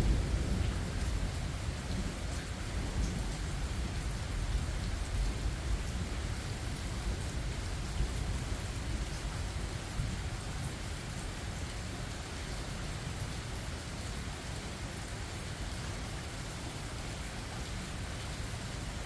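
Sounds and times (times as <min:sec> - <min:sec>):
thunder rumbling: 0:00.0 - 0:06.2
steady rain falling: 0:00.0 - 0:19.0.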